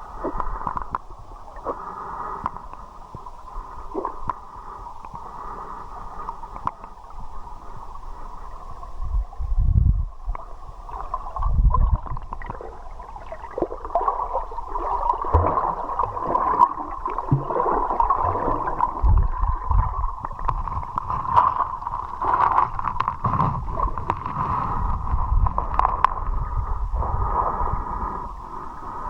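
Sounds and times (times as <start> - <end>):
underwater river current gurgling: 0.0 - 29.0.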